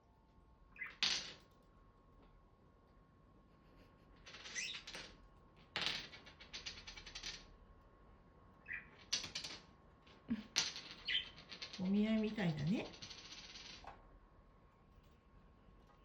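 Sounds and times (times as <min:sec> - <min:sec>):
parrots pecking and scratching: 0:03.7 - 0:07.5, 0:08.7 - 0:13.9.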